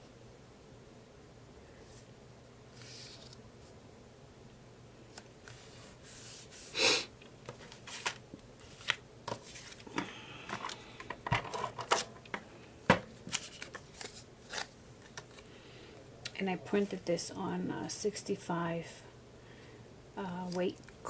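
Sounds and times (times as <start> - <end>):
paper rustling: 2.7 - 3.4, 7.5 - 10.0, 13.2 - 15.5.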